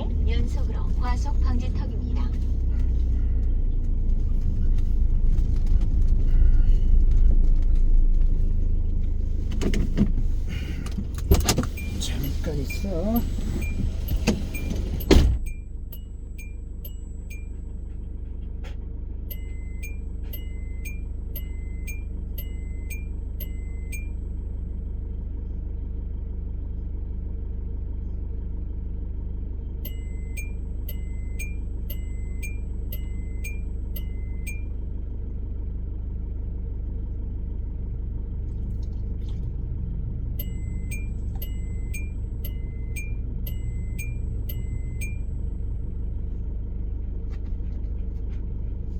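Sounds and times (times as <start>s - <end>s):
car engine idling: 0.0s - 48.9s
dashboard electronic ticking: 11.3s - 17.6s, 19.3s - 24.2s, 29.8s - 34.7s, 40.4s - 45.3s.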